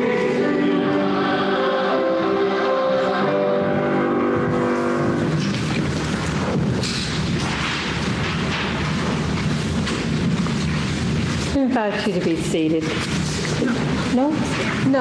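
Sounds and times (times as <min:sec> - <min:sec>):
choir singing hymn chord: 0:00.0 - 0:05.4
steady low rumbling: 0:03.3 - 0:15.0.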